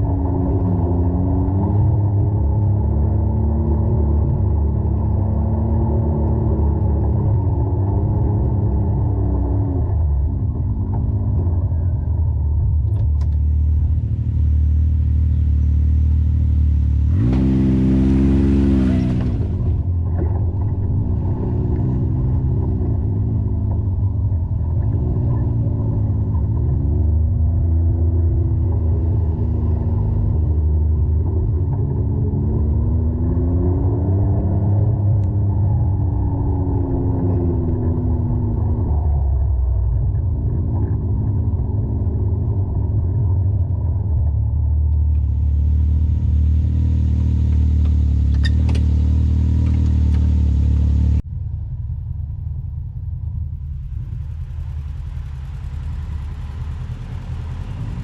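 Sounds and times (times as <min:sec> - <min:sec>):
utility vehicle engine revving: 0:00.0 - 0:51.3, 0:53.3 - 0:58.0.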